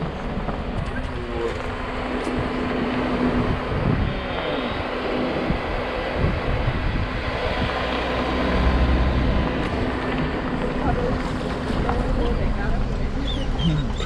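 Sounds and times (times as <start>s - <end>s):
strong wind rushing: 1.7s - 10.0s.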